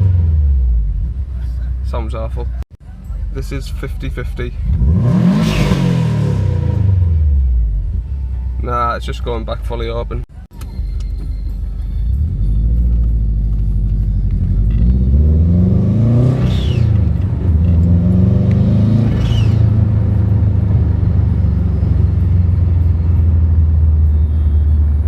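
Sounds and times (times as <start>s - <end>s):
car engine revving and idling: 0.0s - 9.2s, 10.1s - 25.0s.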